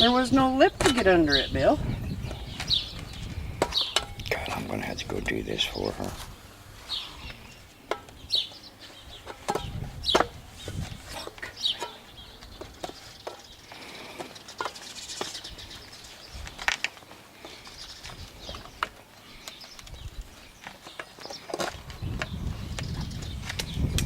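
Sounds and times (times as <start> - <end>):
knocks of hive equipment handled: 9.2 - 10.4.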